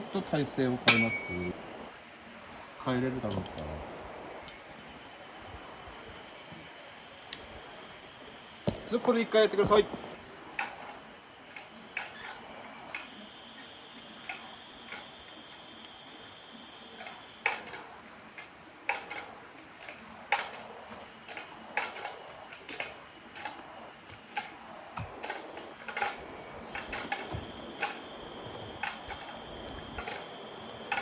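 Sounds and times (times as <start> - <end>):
metallic clicks and clinks: 0.9 - 1.6, 14.2 - 31.0.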